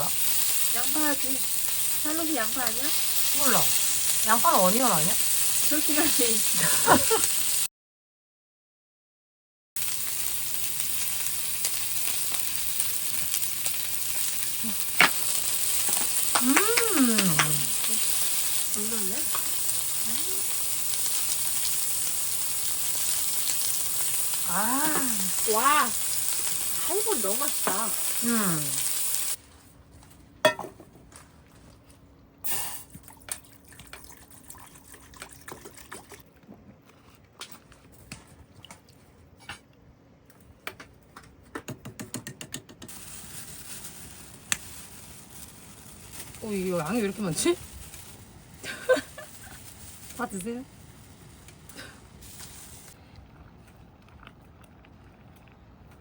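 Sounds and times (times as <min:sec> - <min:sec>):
food sizzling in a hot pan: 0:00.0 - 0:07.7, 0:09.8 - 0:29.4, 0:32.5 - 0:32.9, 0:42.9 - 0:53.0
tableware clinking: 0:30.4 - 0:30.8.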